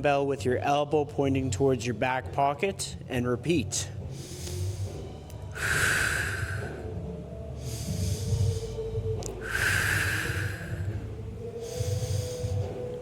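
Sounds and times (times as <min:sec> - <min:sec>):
person inhaling: 0:04.1 - 0:06.9, 0:07.6 - 0:12.8
person exhaling sharply: 0:09.4 - 0:10.9.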